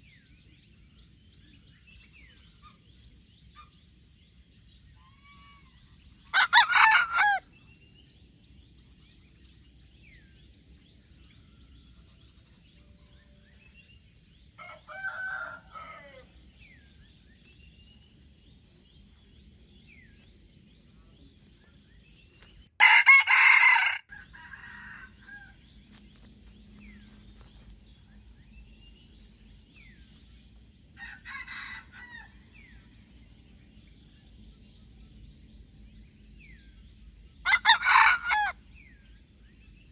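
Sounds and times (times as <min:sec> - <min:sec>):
cockerel crowing: 0:06.3 - 0:07.4, 0:14.6 - 0:16.4, 0:22.8 - 0:25.6, 0:31.0 - 0:32.4, 0:37.5 - 0:38.6.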